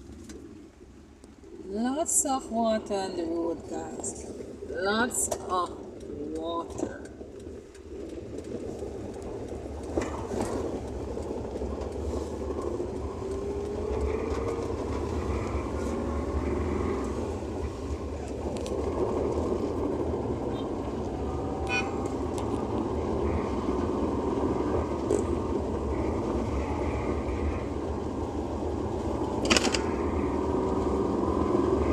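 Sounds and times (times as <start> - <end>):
tyre noise on wet road: 0.0 - 31.9
car engine accelerating: 7.0 - 31.9
sharp clicks: 29.4 - 30.0.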